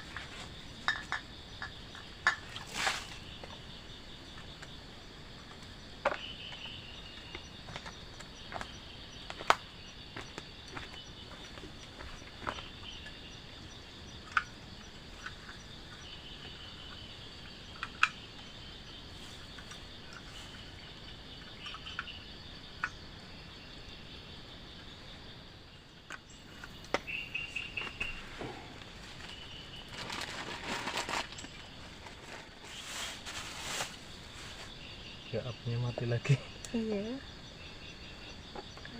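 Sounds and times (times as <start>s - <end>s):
crickets trilling: 0.0s - 38.9s
bird chirping: 25.8s - 28.6s.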